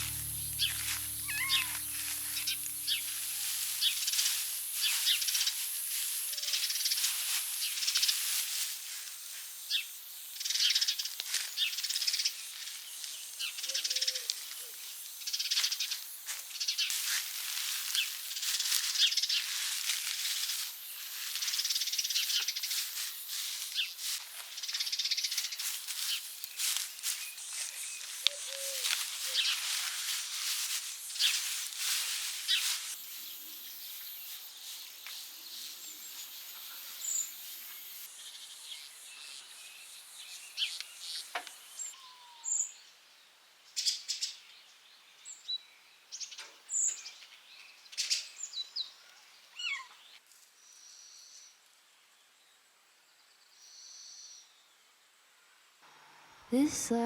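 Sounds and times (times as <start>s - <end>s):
birds chirping: 0.0s - 5.5s, 21.2s - 42.7s.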